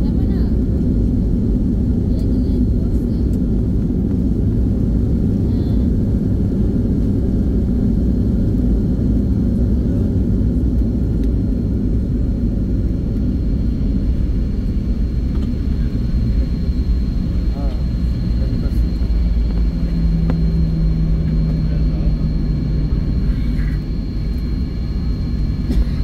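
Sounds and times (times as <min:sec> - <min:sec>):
airliner cabin engine rumble: 0:00.0 - 0:26.0.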